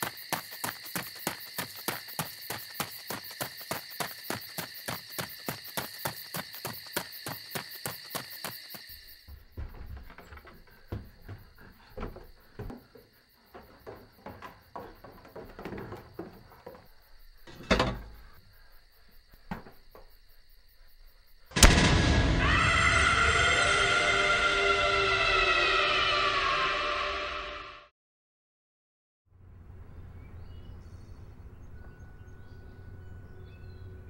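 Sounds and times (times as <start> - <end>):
crickets chirping: 0.0 - 27.6, 29.8 - 34.0
soft knocks and thuds: 9.3 - 18.3, 19.4 - 20.1
loud burst of sound: 21.6 - 27.7.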